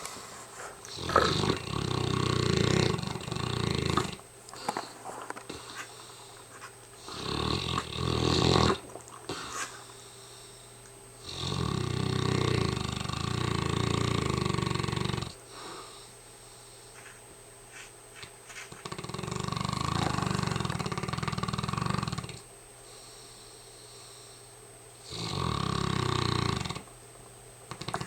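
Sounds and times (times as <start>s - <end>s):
dog snoring: 0.0s - 10.0s, 11.2s - 16.1s, 18.7s - 22.5s, 25.0s - 26.9s, 27.7s - 28.0s
dog breathing: 0.0s - 26.8s.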